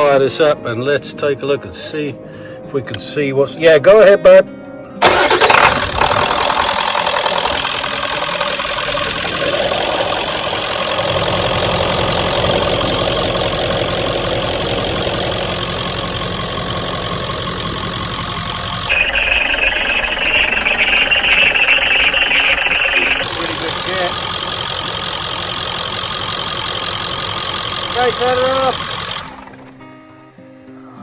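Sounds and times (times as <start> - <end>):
diesel engine idling: 5.0 - 30.0.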